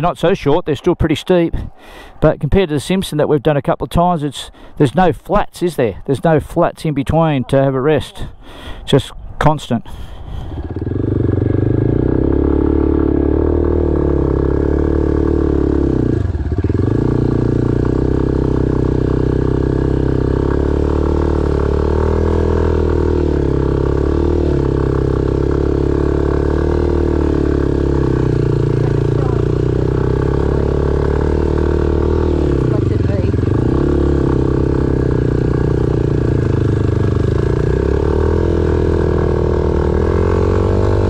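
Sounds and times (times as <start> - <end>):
motorcycle engine revving under load: 10.3 - 41.0.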